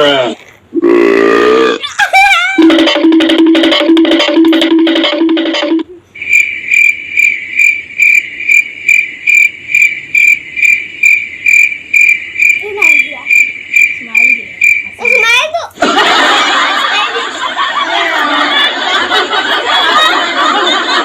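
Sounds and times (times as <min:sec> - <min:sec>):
cricket chirping: 0:06.2 - 0:15.3.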